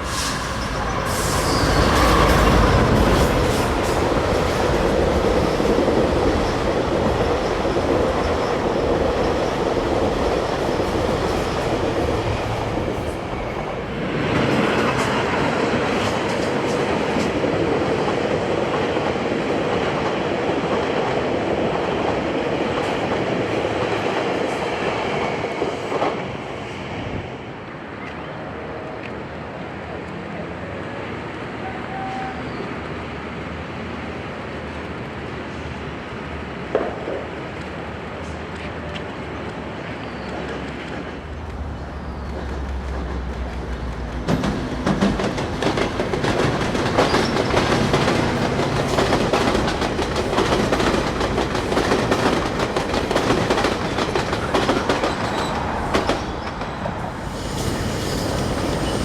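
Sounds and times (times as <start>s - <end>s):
train wheels clattering over rails: 38.2s - 59.0s.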